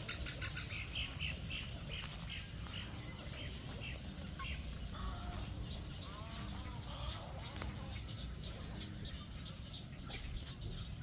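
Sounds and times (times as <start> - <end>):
wading birds squawking: 0.0 - 11.0.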